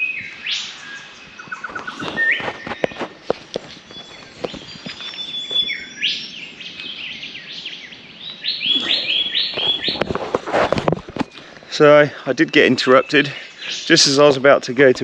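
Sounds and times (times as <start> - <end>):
bird whistled song: 0.0 - 3.1, 3.8 - 10.1
bird chirps: 0.0 - 11.6, 12.6 - 14.4.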